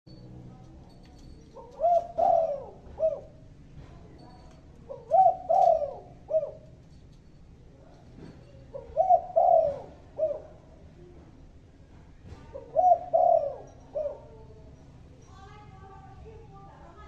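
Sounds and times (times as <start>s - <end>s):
dove cooing: 1.6s - 3.5s, 4.8s - 6.8s, 8.7s - 10.8s, 12.5s - 14.6s.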